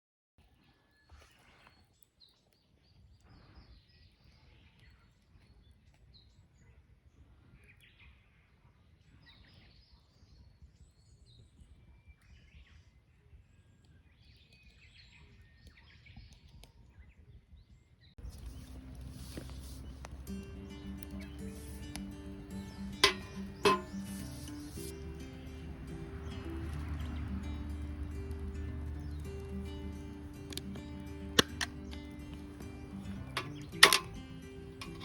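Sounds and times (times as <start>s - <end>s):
birds chirping: 18.2s - 35.0s
low outdoor rumble: 18.2s - 35.0s.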